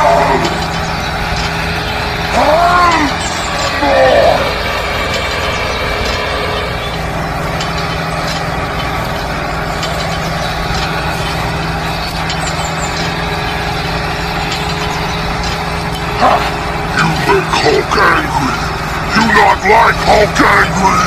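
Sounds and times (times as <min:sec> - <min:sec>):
tractor motor running: 0:00.0 - 0:21.0.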